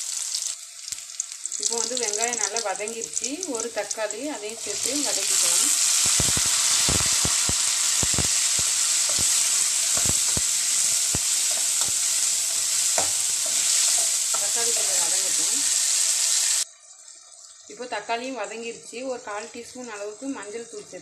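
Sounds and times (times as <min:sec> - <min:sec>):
vegetables sizzling in hot oil: 0:00.0 - 0:21.0
metal spatula scraping a pan: 0:04.7 - 0:15.9.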